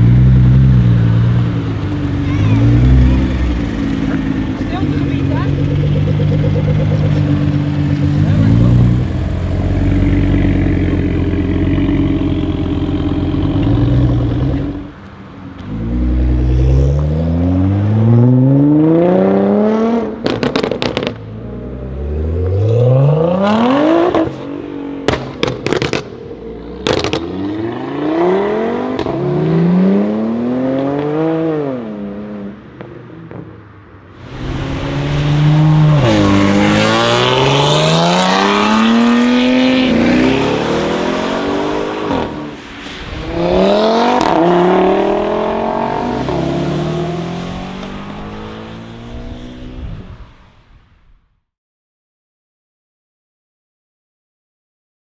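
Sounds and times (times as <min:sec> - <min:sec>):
exhaust crackles and pops: 0:00.0 - 0:16.2, 0:20.1 - 0:21.7, 0:25.1 - 0:27.4, 0:32.8 - 0:51.0
car engine accelerating: 0:00.0 - 0:50.9.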